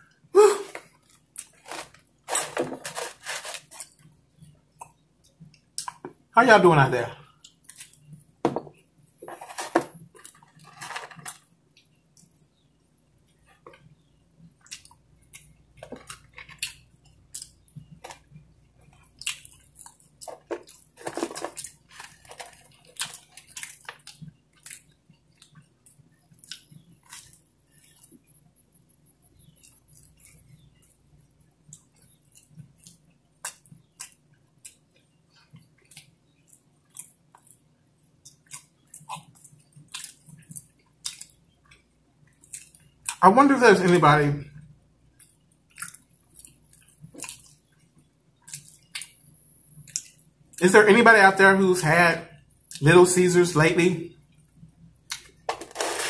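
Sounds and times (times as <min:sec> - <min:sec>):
rustling: 0:01.5 - 0:03.9
person chewing pizza: 0:13.3 - 0:43.2, 0:45.1 - 0:50.6.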